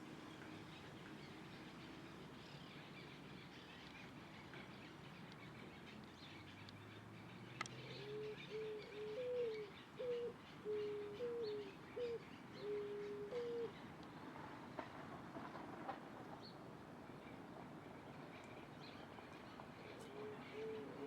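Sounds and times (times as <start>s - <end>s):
dove cooing: 7.8s - 13.8s, 19.9s - 21.0s.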